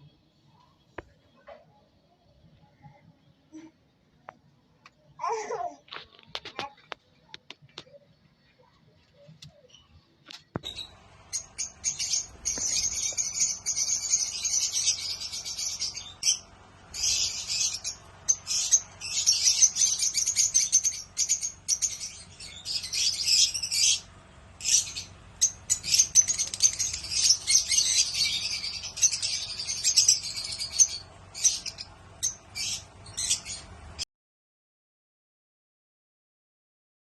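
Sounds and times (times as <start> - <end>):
finches chirping: 10.6 - 33.7.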